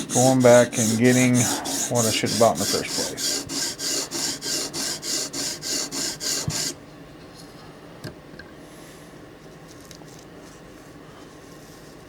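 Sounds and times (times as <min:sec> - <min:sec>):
sharpening stone rasping on knife: 0:00.0 - 0:06.8.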